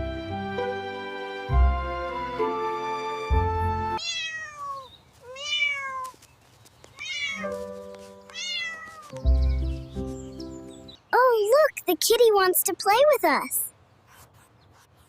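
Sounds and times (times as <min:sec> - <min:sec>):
background music: 0:00.0 - 0:04.0, 0:09.2 - 0:11.0
cat meowing: 0:04.0 - 0:06.2, 0:06.9 - 0:07.6, 0:08.3 - 0:09.2.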